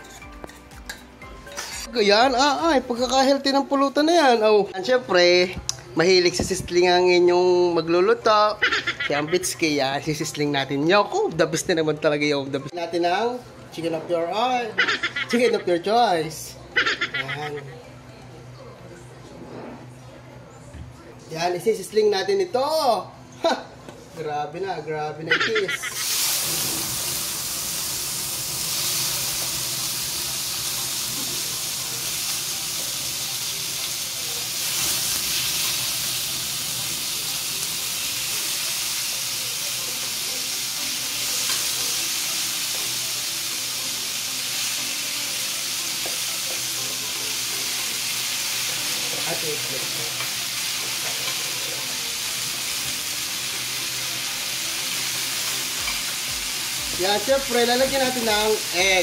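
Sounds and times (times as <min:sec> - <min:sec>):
metal spoon scraping a pan: 0:00.0 - 0:01.9
food sizzling in oil: 0:00.0 - 0:02.7, 0:25.3 - 0:59.0.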